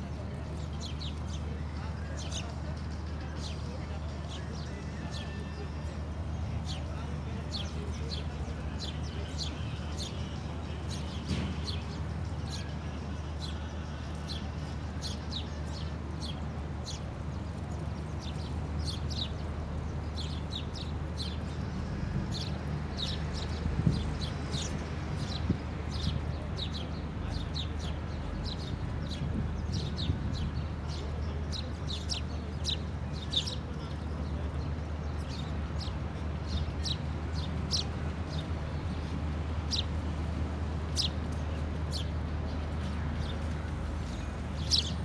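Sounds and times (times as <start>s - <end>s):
birds chirping: 41.9s - 45.0s.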